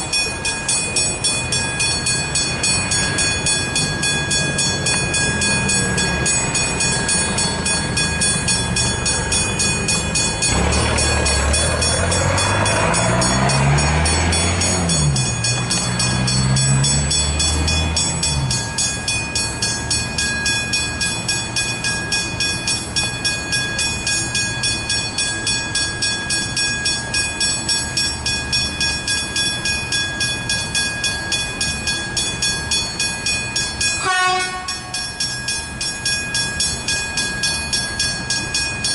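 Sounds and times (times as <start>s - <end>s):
rapid even ringing: 0.0s - 38.9s
train passing over rails: 0.0s - 38.9s
low motor sound: 0.1s - 23.7s.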